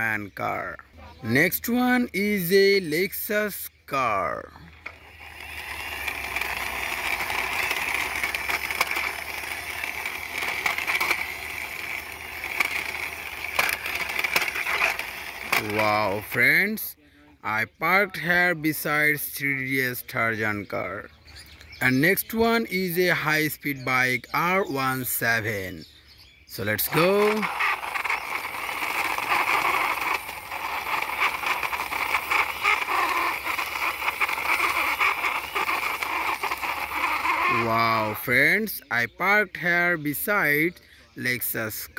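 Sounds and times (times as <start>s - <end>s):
toy car wheels rolling: 0.0s - 21.1s, 21.8s - 25.8s, 26.5s - 40.7s
small clicks: 4.6s - 16.4s, 26.8s - 38.1s.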